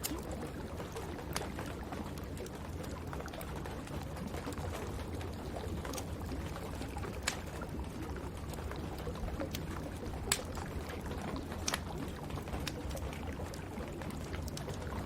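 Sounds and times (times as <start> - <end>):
wood fire crackling: 0.0 - 15.0
fire popping: 5.2 - 8.2, 9.1 - 14.8.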